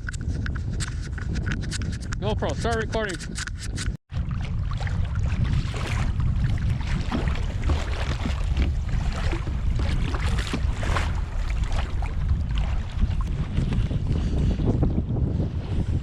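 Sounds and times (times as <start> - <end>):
wind buffeting microphone: 0.0 - 16.0
small waves splashing against hull: 3.6 - 16.0.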